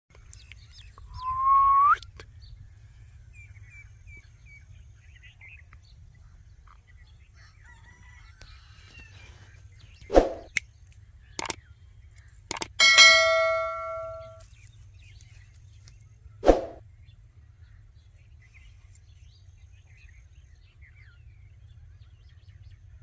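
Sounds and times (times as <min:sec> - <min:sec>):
faint bird chirps: 0:00.6 - 0:02.2
bird whistled call rising: 0:01.1 - 0:02.1.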